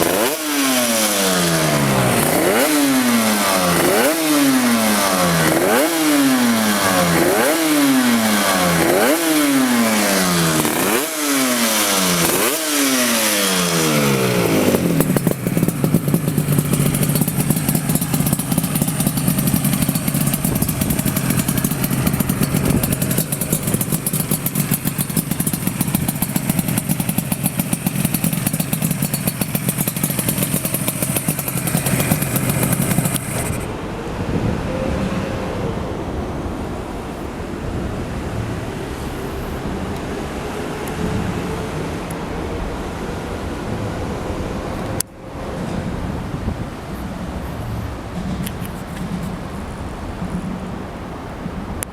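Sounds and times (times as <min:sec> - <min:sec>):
motorcycle engine revving: 0:00.0 - 0:35.2.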